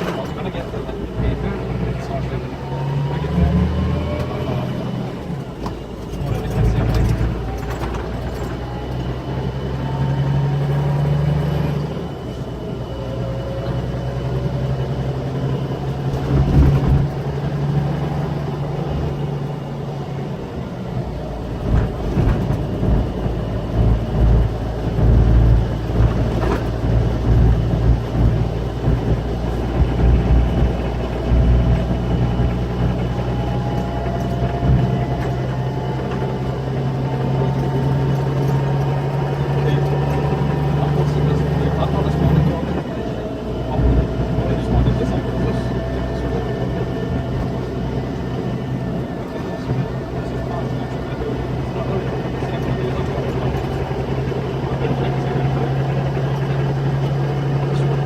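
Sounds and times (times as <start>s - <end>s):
coach diesel engine running: 0.0s - 58.0s
irregular knocks and thuds: 16.1s - 17.4s, 21.6s - 24.4s.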